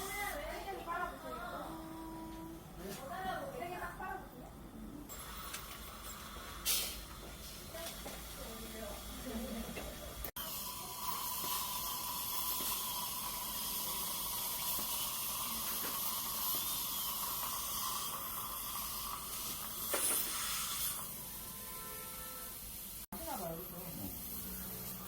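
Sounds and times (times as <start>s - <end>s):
dental equipment hissing: 5.1s - 7.5s, 10.3s - 21.6s.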